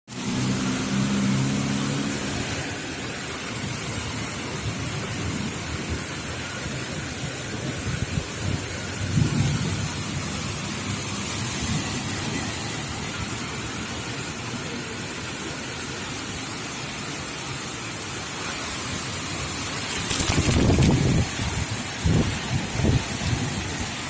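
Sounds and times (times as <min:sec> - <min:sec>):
heavy rain pouring: 0:00.1 - 0:24.0
thunder rumbling: 0:07.6 - 0:12.3, 0:19.9 - 0:23.6.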